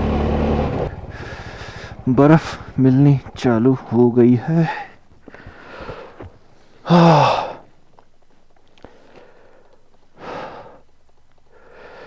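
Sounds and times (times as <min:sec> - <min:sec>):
man sighing: 0:00.9 - 0:02.8, 0:04.4 - 0:07.7.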